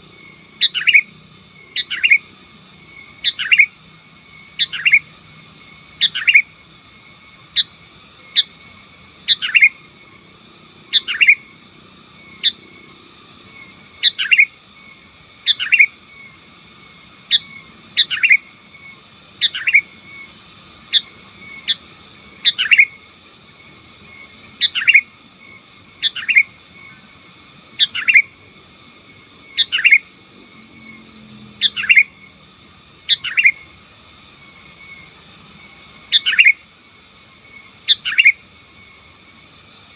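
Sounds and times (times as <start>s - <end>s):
bulbul singing: 0.5s - 3.8s, 4.4s - 6.7s, 7.4s - 10.2s, 10.8s - 11.6s, 13.6s - 14.7s, 15.3s - 16.0s, 17.2s - 23.1s, 23.9s - 25.3s, 26.0s - 32.3s, 33.0s - 33.8s, 36.0s - 36.7s, 37.8s - 38.5s.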